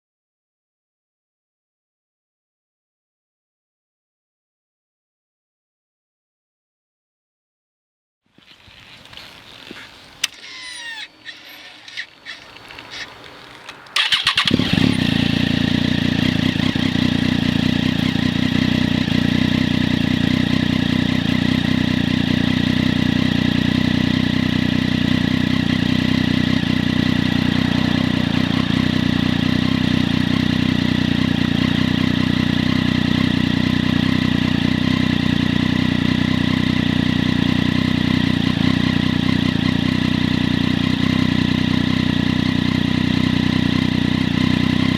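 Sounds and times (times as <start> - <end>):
faint clicks: 8.7 - 14.2
motorcycle engine starting and idling: 8.8 - 44.9.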